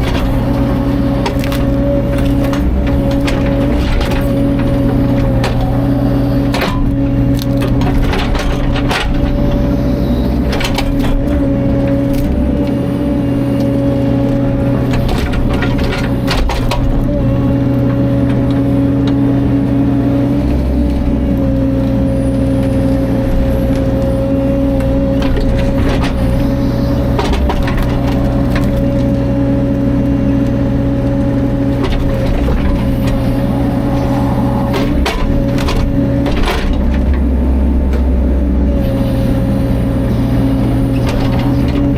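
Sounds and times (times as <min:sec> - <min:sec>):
excavator diesel engine running: 0:00.0 - 0:41.9
sharp cracks and knocks: 0:01.2 - 0:05.6.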